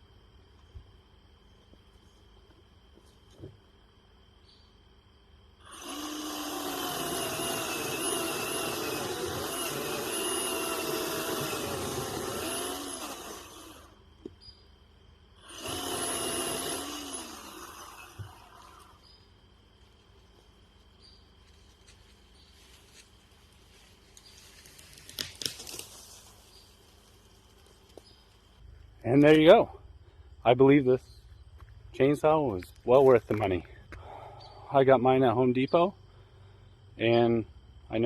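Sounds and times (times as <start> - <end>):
cordless chainsaw cutting wood: 5.6 - 14.0, 15.4 - 19.1.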